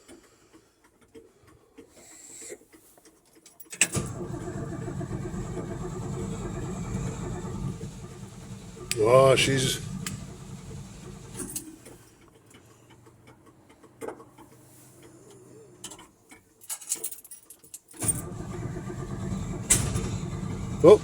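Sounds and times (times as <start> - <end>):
starter cranking engine: 3.8 - 15.1, 18.0 - 21.0
low engine rumble: 4.0 - 13.2, 18.0 - 21.0.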